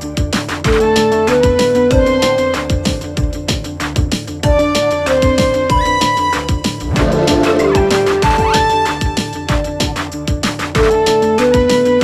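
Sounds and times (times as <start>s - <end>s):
electronic music with steady beat: 6.8s - 9.2s.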